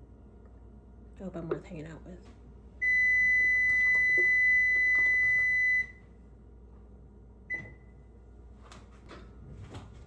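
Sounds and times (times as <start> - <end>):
oven alert beeps: 2.8 - 6.0, 7.5 - 8.0.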